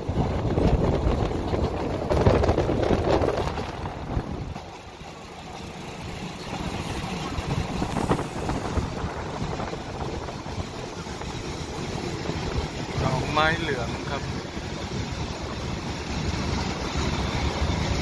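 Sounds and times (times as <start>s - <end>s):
wind on microphone: 0.0s - 4.7s, 7.0s - 13.3s
train rumbling inside carriage: 0.0s - 18.0s.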